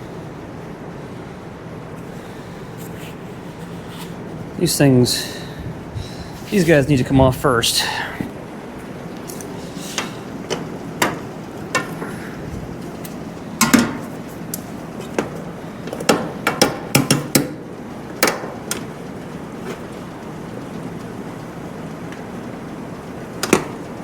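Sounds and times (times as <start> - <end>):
hand tools knocking on metal: 9.9 - 12.2, 13.6 - 17.6, 18.2 - 18.9.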